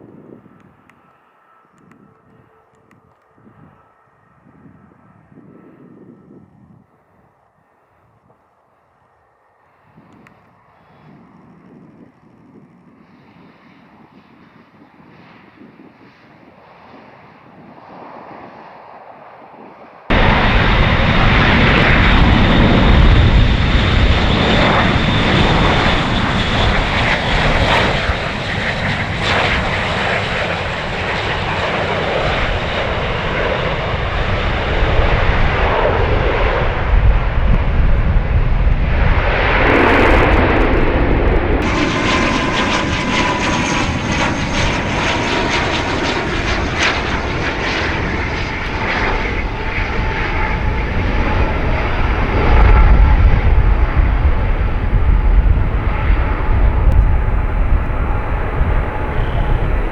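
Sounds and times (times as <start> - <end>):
high turboprop whine: 20.1 - 59.9
turboprop engines running: 20.1 - 59.9.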